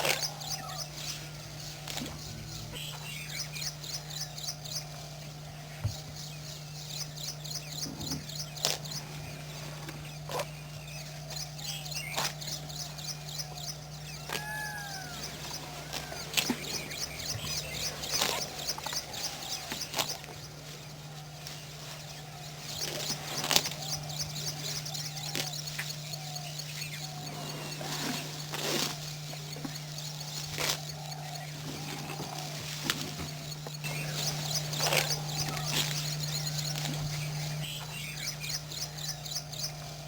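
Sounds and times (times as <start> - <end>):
birds chirping and whistling: 0.0 - 4.9, 5.6 - 40.0
steady low hum: 0.0 - 40.0.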